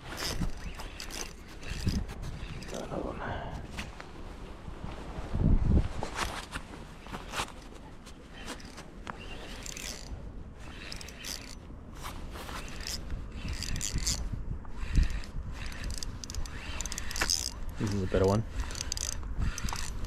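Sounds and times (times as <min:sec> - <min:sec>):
fishing tackle clicking and rattling: 0:00.0 - 0:02.9, 0:08.4 - 0:11.7, 0:12.6 - 0:14.2, 0:14.8 - 0:20.0.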